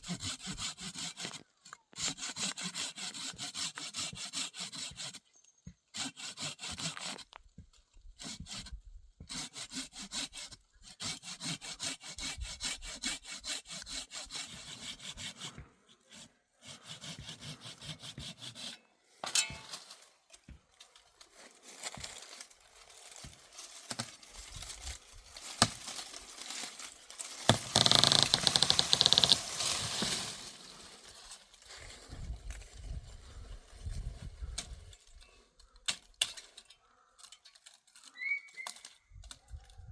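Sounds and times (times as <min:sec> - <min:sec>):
hand saw cutting wood: 0:00.0 - 0:07.4, 0:08.0 - 0:20.0, 0:20.8 - 0:31.5.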